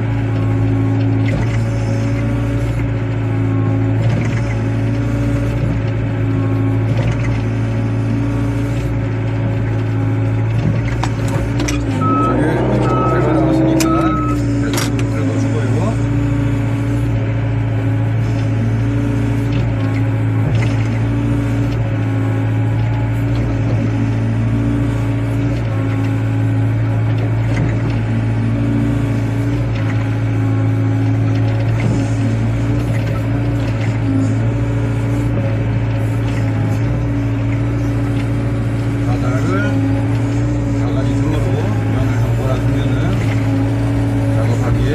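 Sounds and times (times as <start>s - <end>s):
diesel engine humming: 0.0s - 44.9s.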